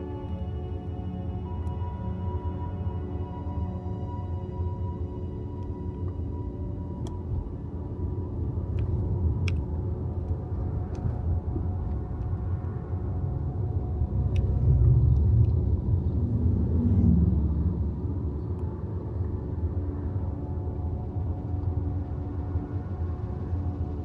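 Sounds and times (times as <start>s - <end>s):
road and tyre rumble: 0.0s - 24.0s
faint clicks: 8.7s - 11.2s.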